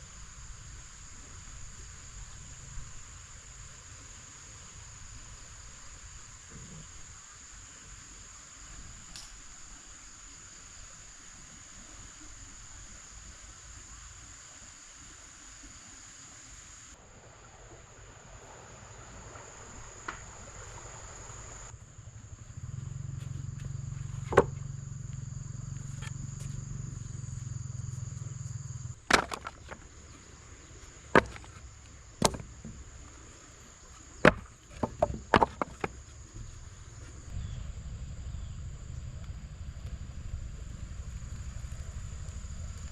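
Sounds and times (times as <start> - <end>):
sharp knocks: 24.3 - 24.6, 29.1 - 29.8, 31.2 - 31.6, 32.2 - 32.8, 34.2 - 36.0.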